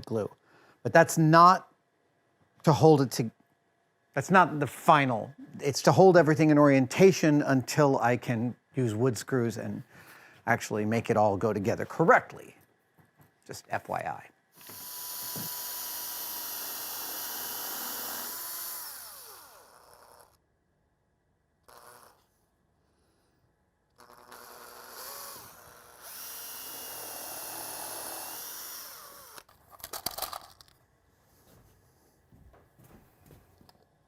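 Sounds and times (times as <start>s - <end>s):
cordless drill running: 14.6s - 20.4s, 21.6s - 22.3s, 24.0s - 29.5s.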